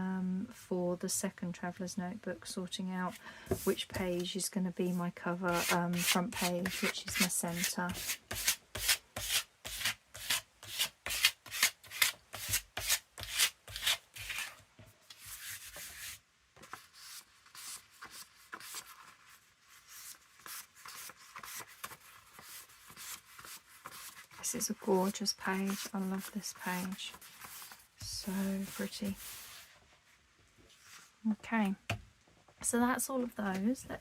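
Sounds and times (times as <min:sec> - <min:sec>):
paper being rubbed and rustled: 0:05.5 - 0:29.8.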